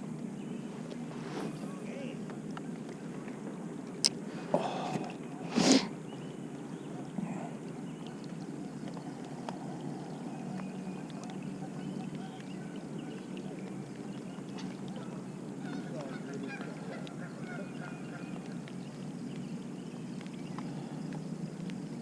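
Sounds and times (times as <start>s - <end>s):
steady low hum: 0.0s - 22.0s
waterfowl honking: 14.6s - 18.5s.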